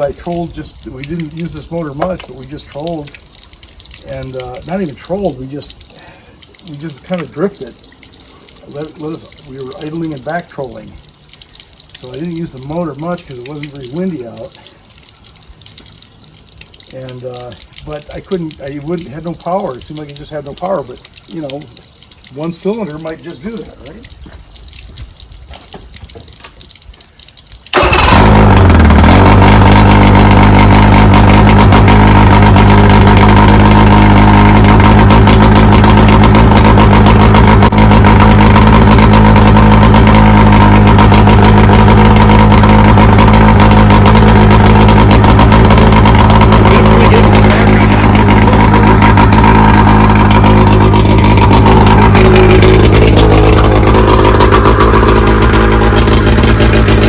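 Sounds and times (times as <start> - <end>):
outboard engine starting and running: 0.0 - 24.6, 27.6 - 57.0.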